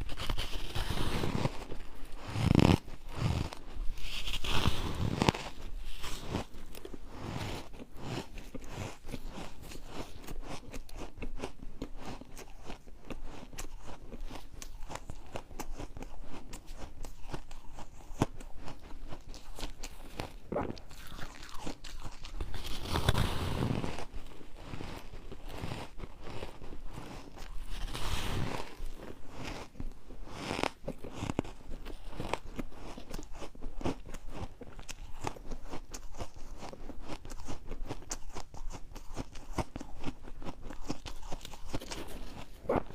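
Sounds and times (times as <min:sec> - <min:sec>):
ice being chewed: 0:00.0 - 0:42.9.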